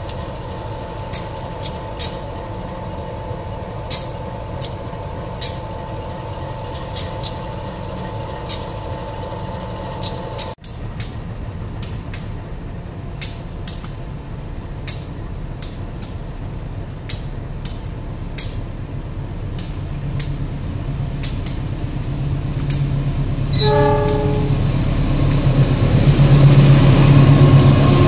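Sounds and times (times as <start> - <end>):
train engine hum: 0.0 - 28.0
train wheels clacking over joints: 3.4 - 7.8, 22.5 - 28.0
train horn tone: 23.5 - 24.9.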